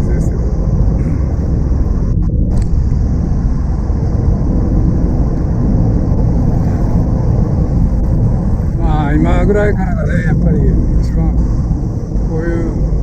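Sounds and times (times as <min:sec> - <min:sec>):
car engine running: 0:00.0 - 0:13.0
road noise: 0:00.0 - 0:13.0
wind buffeting: 0:00.0 - 0:13.0.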